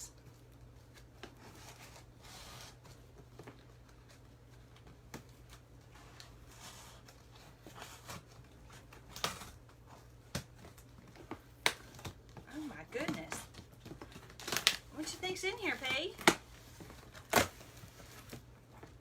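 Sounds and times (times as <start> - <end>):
tape and cardboard rustling: 0.1 - 19.0.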